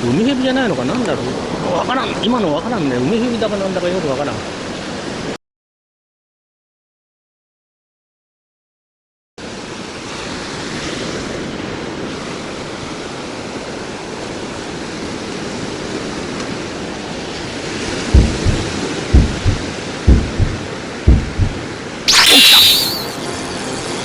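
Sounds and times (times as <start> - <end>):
wind: 0.0 - 5.4
low thump: 18.2 - 22.2.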